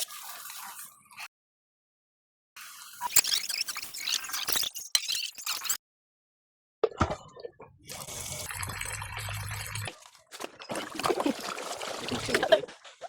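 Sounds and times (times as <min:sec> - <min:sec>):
water running and splashing: 0:08.0 - 0:13.0.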